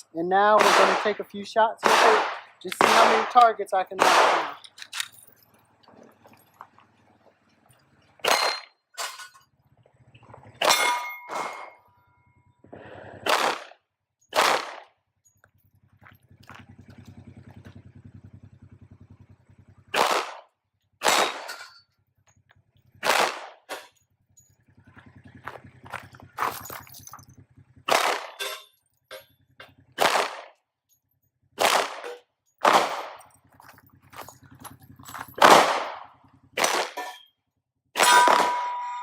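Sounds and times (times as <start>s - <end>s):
pistol shots: 0.5s - 5.1s, 8.2s - 8.7s, 10.6s - 11.8s, 13.2s - 15.0s, 19.9s - 21.6s, 23.0s - 23.9s, 27.8s - 28.7s, 29.9s - 30.6s, 31.6s - 33.3s, 35.4s - 37.2s, 38.0s - 39.0s.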